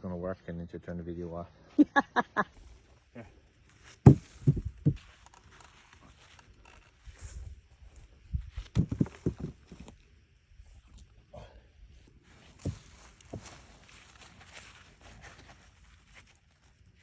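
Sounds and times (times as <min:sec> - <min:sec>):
dull thumps: 0:04.0 - 0:05.1, 0:08.6 - 0:09.9.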